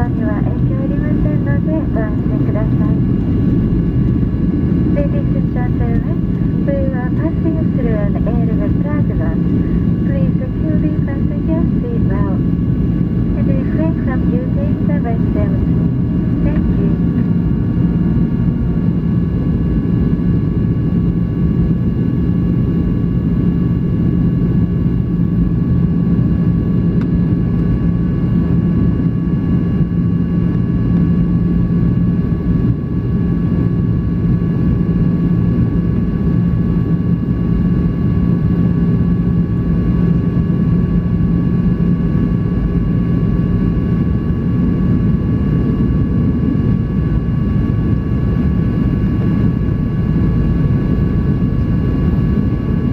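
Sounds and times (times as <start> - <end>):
airplane cabin engine roar: 0.0 - 52.9
constant hum: 0.0 - 52.9.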